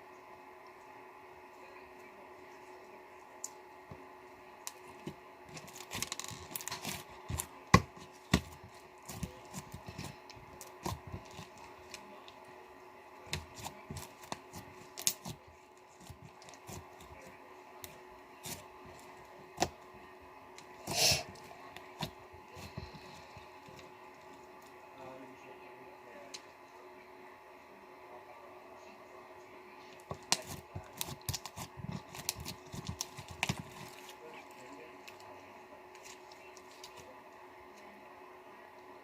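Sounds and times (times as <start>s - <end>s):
slime squishing with sticky pops: 4.7s - 12.0s, 30.1s - 34.1s.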